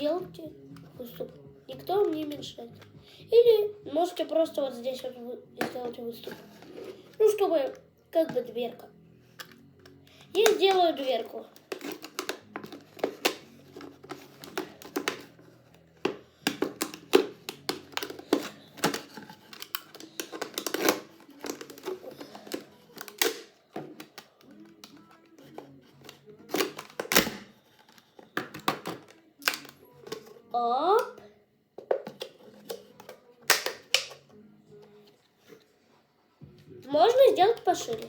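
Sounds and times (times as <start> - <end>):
quiet background music: 0.0 - 38.0
knife cutting plastic bottle: 9.4 - 30.5, 31.8 - 34.3.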